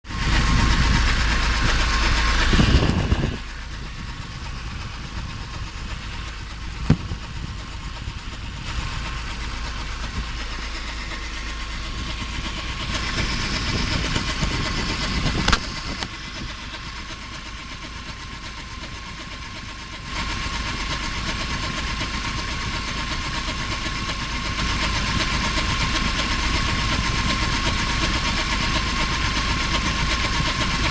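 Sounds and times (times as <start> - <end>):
petrol engine running: 0.1 - 30.9
sharp knock: 6.8 - 7.5.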